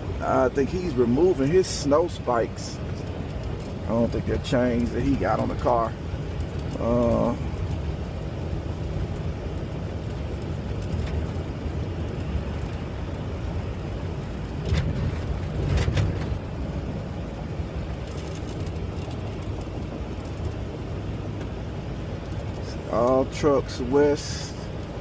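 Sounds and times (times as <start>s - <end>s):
truck engine and road rumble: 0.0s - 25.0s.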